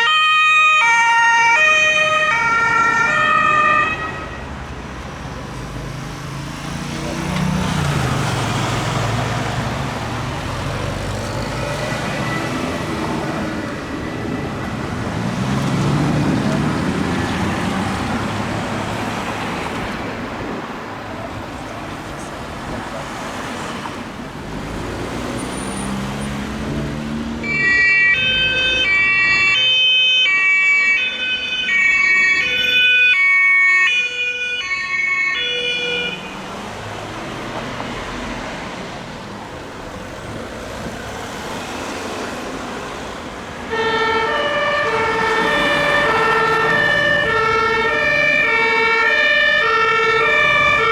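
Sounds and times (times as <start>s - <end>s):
two-tone siren: 0.0s - 4.6s, 11.8s - 15.1s, 27.4s - 36.6s, 43.7s - 50.9s
vehicle engine and road noise: 0.0s - 50.9s.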